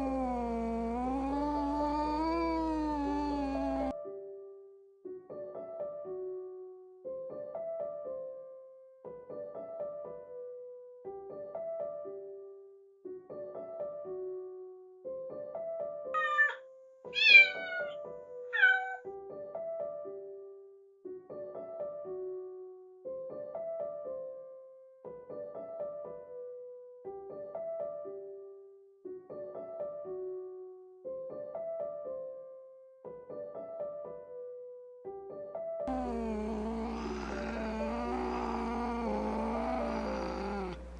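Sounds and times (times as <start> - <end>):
light piano-like background music: 3.9 - 17.2, 17.9 - 35.8
kitten meowing: 16.2 - 16.6, 17.2 - 18.0, 18.6 - 19.0.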